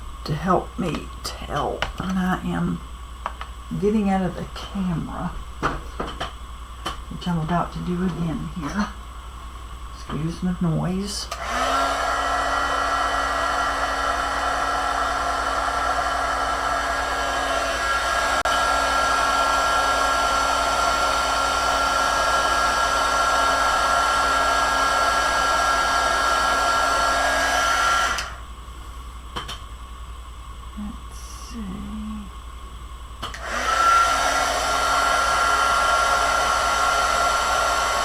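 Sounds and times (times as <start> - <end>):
heat tool blowing with whine: 6.4 - 29.2, 30.6 - 38.0.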